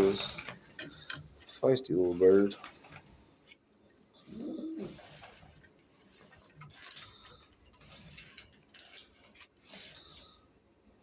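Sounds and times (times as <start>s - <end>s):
rustling: 0.0s - 10.6s.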